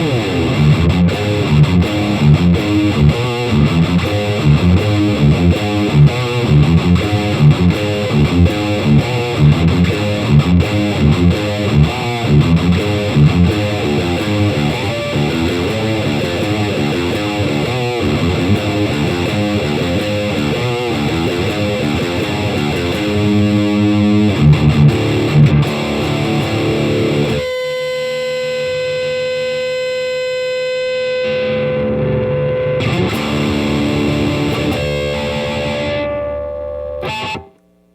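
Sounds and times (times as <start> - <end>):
distorted electric guitar riff: 0.0 - 37.9.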